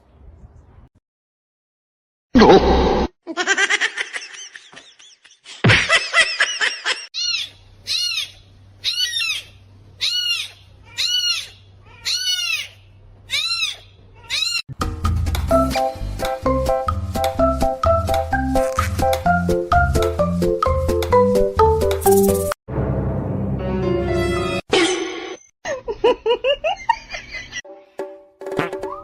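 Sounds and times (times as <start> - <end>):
animal calling: 7.2 - 14.6
music: 14.7 - 24.6, 27.7 - 29.0.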